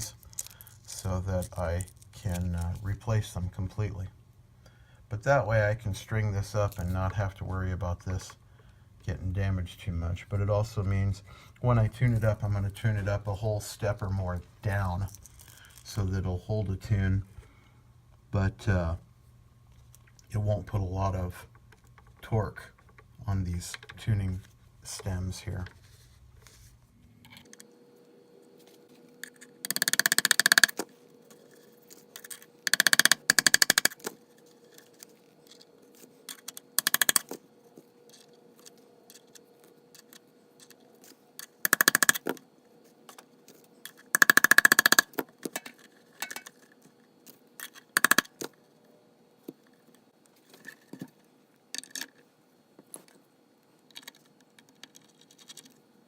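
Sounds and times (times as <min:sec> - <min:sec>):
metal parts scraping and rattling: 0:00.0 - 0:02.9, 0:15.0 - 0:16.0, 0:43.5 - 0:46.9.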